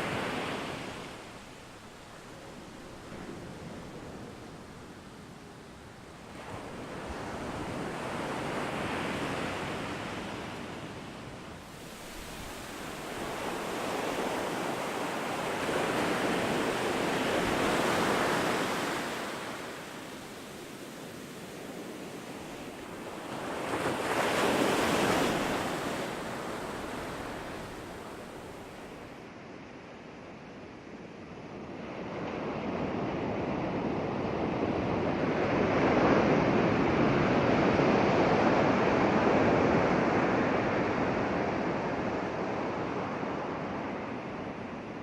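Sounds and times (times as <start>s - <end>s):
ocean waves breaking: 0.0s - 29.1s.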